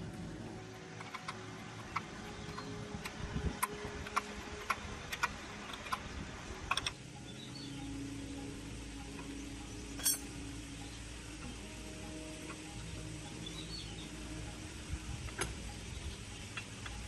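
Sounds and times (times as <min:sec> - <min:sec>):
low steady hum: 0:00.0 - 0:17.0
metallic clicks of hand tools: 0:01.0 - 0:07.0, 0:10.0 - 0:10.3.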